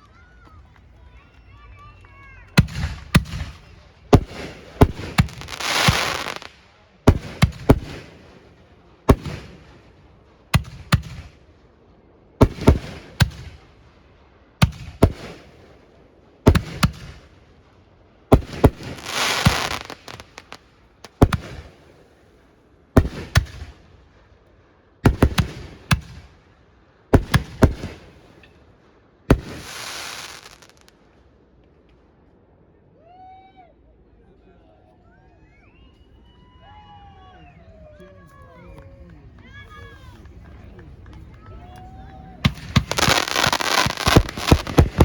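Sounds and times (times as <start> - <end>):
fireworks bangs: 0.2 - 32.2, 38.3 - 45.0
fireworks hissing: 2.6 - 6.6, 18.3 - 22.2, 29.3 - 30.9, 42.4 - 45.0.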